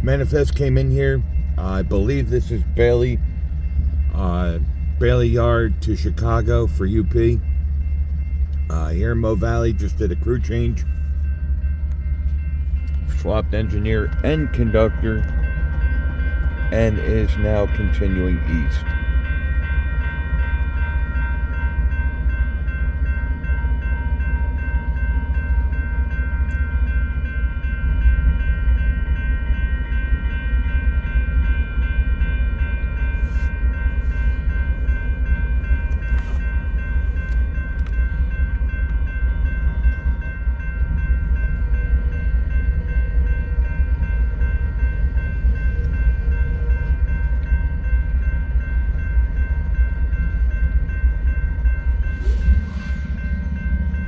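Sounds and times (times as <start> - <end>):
steady high tones: 0.0 - 21.8, 33.5 - 54.0
freight train rumbling: 0.0 - 54.0.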